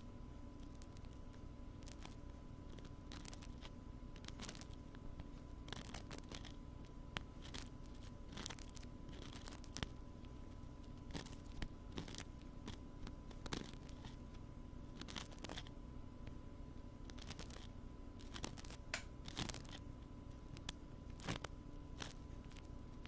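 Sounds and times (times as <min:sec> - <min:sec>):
background hum: 0:00.0 - 0:23.0.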